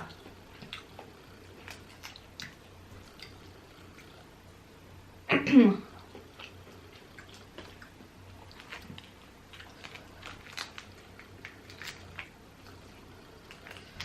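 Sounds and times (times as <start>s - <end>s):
chewing: 0.0s - 4.4s, 5.9s - 14.0s
crawfish shells cracking: 6.2s - 14.0s.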